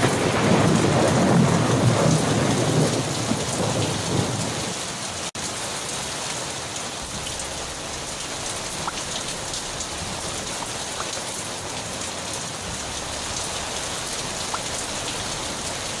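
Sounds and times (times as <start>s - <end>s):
steady rain falling: 0.0s - 16.0s
drops ticking: 10.4s - 11.2s, 14.3s - 15.2s.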